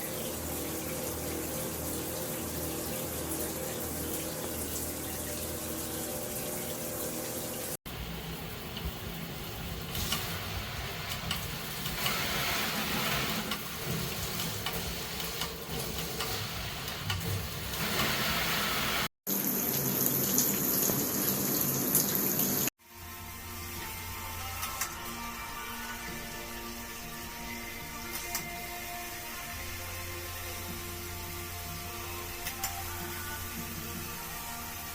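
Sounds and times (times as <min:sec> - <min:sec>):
water spraying from shower head: 0:08.2 - 0:19.1.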